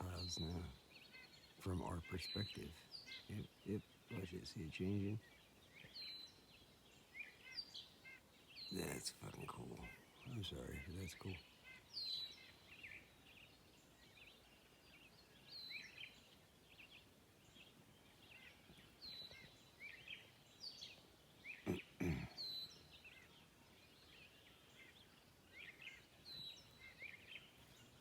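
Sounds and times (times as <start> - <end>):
bird singing high phrases: 0.0 - 28.0.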